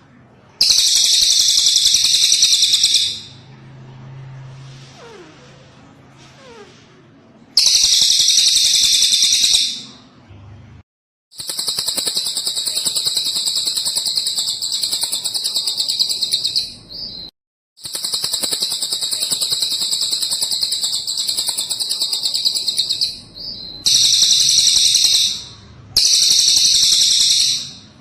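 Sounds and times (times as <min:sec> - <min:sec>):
bird singing rapid trills: 0:00.6 - 0:03.4, 0:07.6 - 0:09.9, 0:11.4 - 0:27.9.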